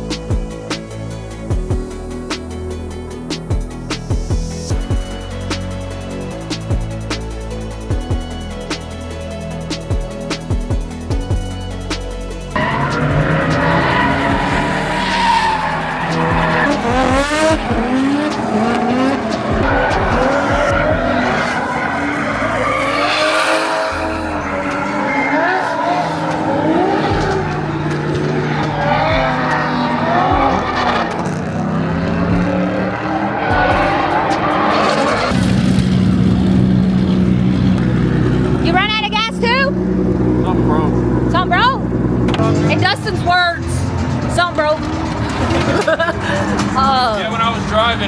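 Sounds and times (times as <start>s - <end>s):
tyres screeching: 5.4s - 31.3s
car engine revving hard: 12.5s - 48.0s.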